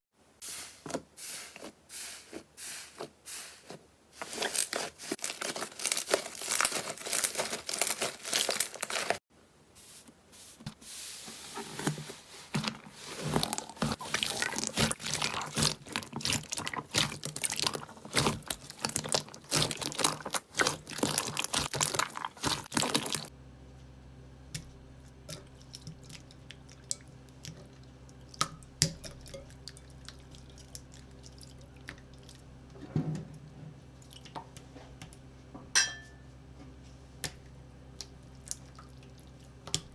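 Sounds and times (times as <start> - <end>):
slime crackling and popping: 4.2 - 9.2, 13.2 - 23.3.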